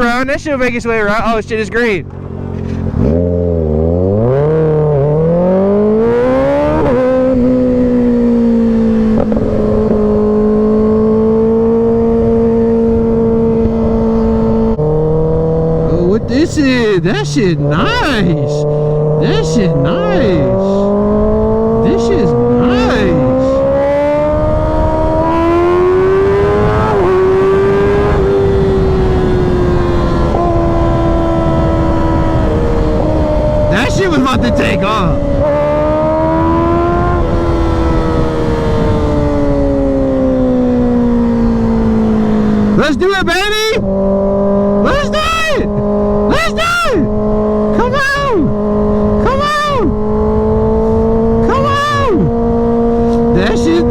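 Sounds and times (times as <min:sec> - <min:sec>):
motorcycle accelerating: 0:00.0 - 0:53.9
wind noise: 0:05.5 - 0:42.8, 0:43.8 - 0:53.9.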